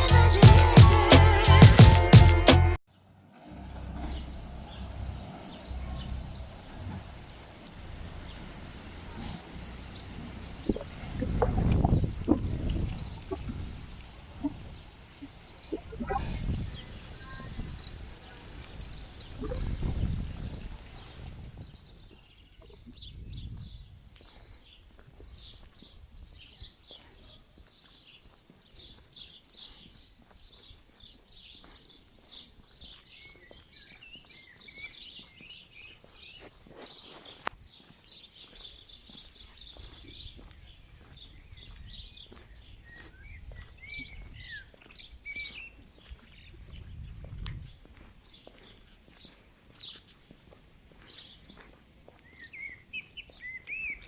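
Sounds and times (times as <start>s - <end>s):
birds chirping and whistling: 18.8s - 20.3s, 32.6s - 50.1s, 52.2s - 54.0s.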